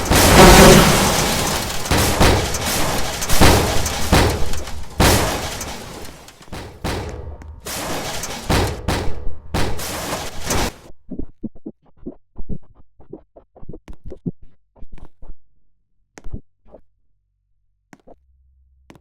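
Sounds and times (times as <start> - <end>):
washing machine banging: 0.0 - 10.8.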